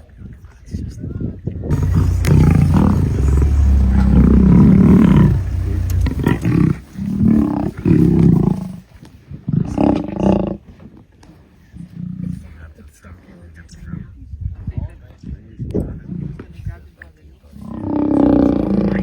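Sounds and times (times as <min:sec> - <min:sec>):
lions fighting and roaring: 0:01.7 - 0:08.8.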